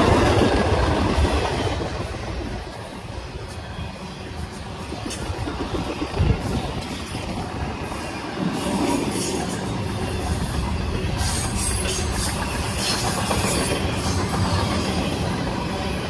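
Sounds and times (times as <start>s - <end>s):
freight train rolling past: 0.0s - 16.0s.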